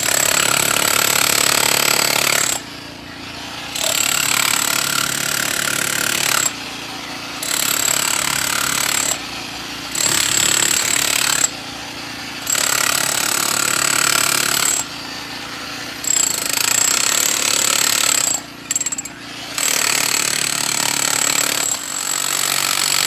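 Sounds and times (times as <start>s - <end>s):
jackhammer breaking concrete: 0.0s - 23.0s
high motor whine: 9.6s - 11.8s.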